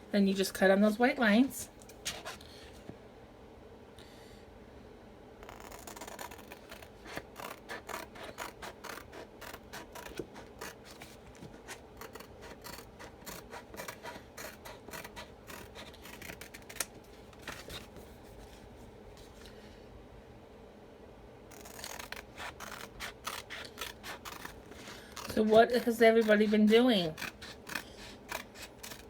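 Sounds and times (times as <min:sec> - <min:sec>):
scissors snipping plastic: 0:05.5 - 0:17.8, 0:21.5 - 0:29.0.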